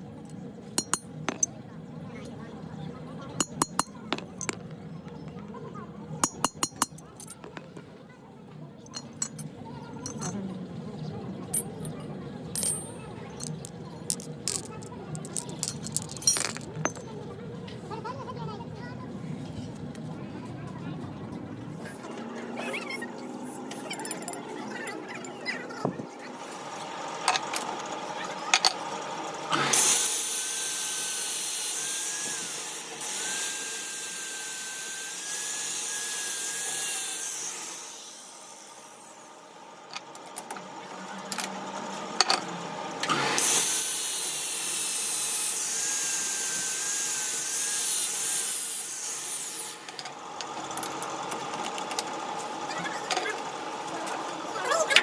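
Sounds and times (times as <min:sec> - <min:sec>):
power tool whining: 0:29.5 - 0:39.3, 0:43.0 - 0:52.5.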